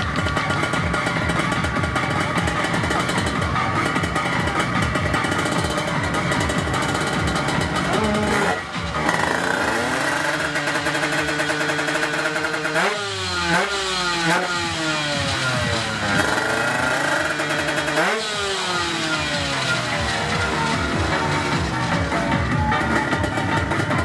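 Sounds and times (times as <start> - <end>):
two-stroke motorcycle engine revving: 0.0 - 24.0.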